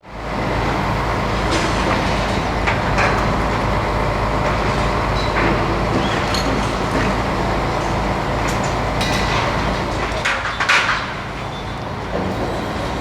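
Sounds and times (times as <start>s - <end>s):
truck diesel engine running: 0.1s - 10.3s.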